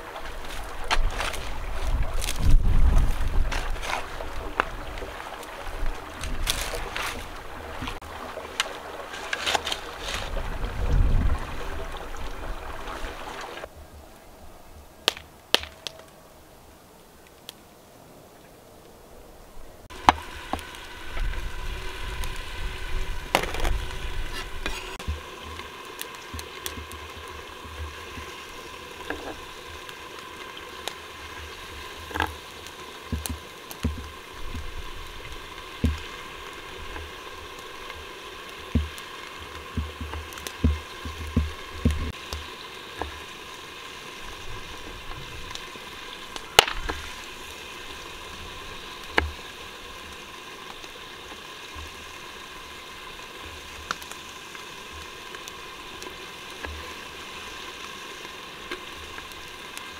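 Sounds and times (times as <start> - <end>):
food sizzling in hot oil: 19.9 - 59.9.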